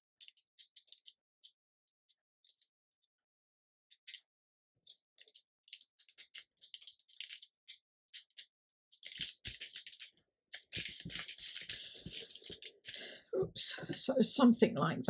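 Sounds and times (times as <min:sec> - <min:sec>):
paper rustling and crinkling: 0:00.2 - 0:01.6, 0:04.9 - 0:13.0.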